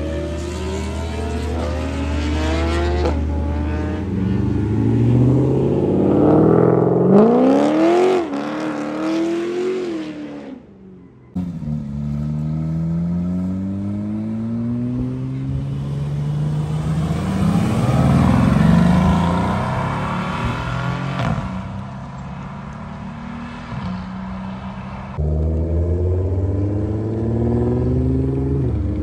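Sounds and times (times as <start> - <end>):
car accelerating past: 0.0 - 10.6, 11.4 - 21.8.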